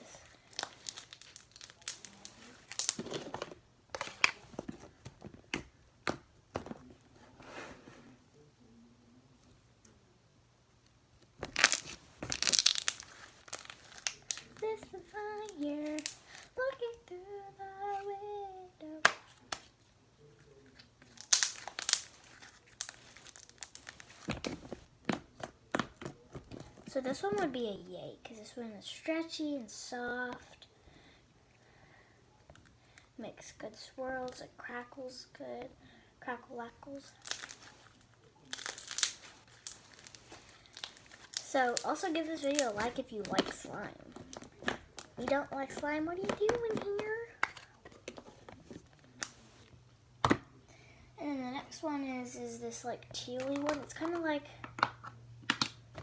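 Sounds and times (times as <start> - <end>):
slime squished with crackles and pops: 0.4 - 3.2, 11.4 - 14.7, 21.0 - 26.6, 37.1 - 37.8, 38.4 - 48.2
slime squished by hand: 38.4 - 43.5.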